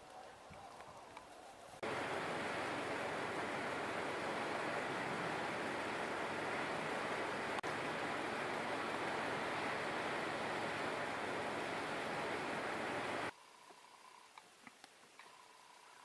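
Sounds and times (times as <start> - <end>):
steady rushing noise: 1.8 - 13.3
faint chirps: 13.2 - 16.0.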